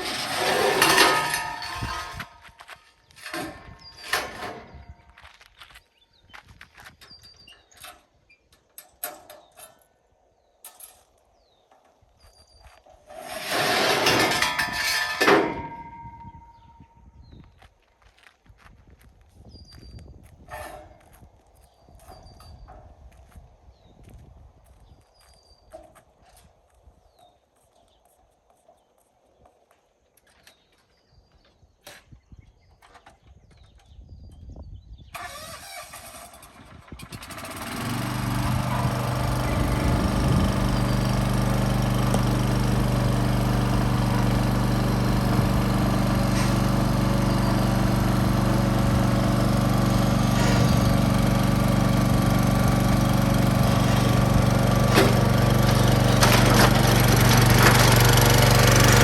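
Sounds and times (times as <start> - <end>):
engine starting and running: 0.0 - 2.3, 3.2 - 4.8, 13.1 - 16.7, 35.1 - 59.0.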